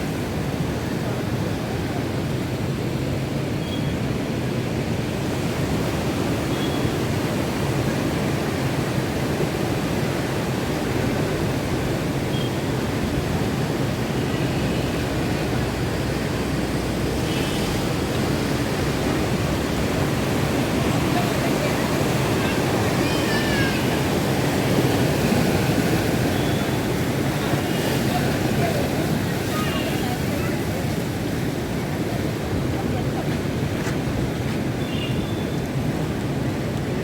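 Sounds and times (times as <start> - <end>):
waves rushing: 0.0 - 37.0
wind: 0.0 - 37.0.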